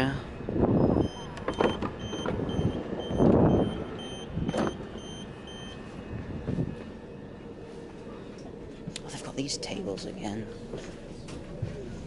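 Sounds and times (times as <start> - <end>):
train door warning beeps: 0.8 - 6.0.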